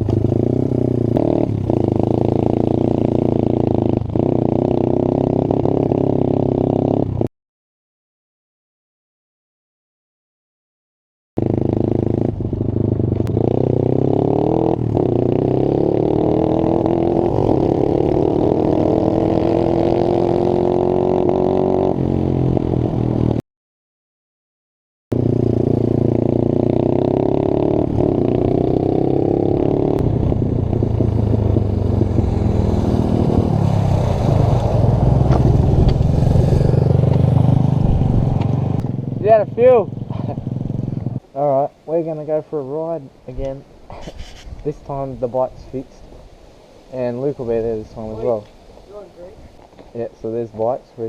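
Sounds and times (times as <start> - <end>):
pit bike engine running: 25.1 - 41.2.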